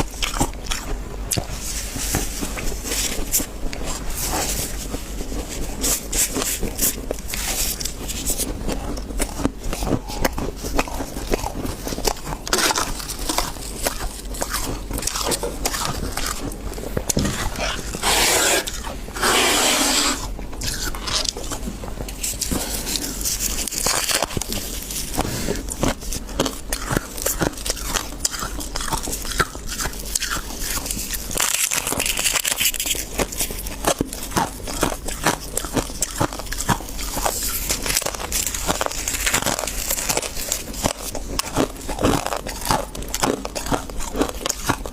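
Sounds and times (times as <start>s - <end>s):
chewing crunchy frost: 0.0s - 44.9s.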